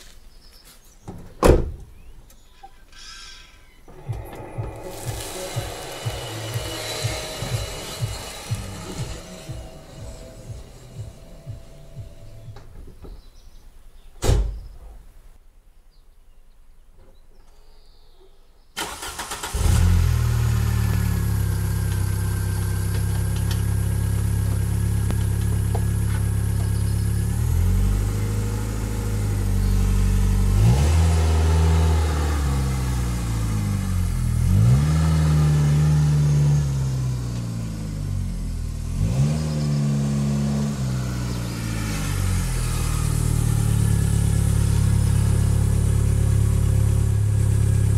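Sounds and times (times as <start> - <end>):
car engine cranking and revving: 3.8 - 12.8, 18.8 - 47.9.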